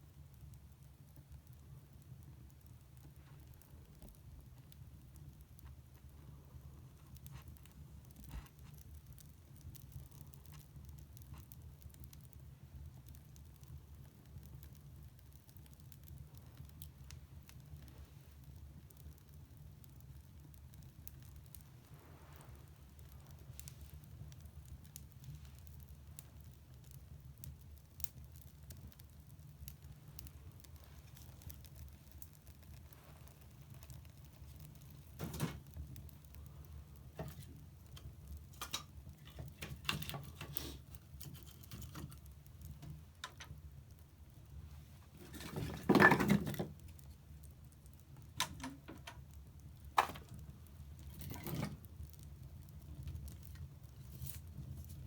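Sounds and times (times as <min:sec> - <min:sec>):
fire crackling and popping: 0:00.0 - 0:55.0
low rumble of fire: 0:00.0 - 0:55.0.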